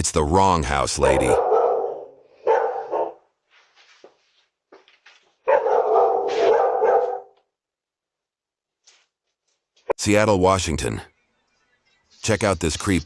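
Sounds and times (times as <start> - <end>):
dog barking: 1.2 - 3.3, 5.4 - 7.4.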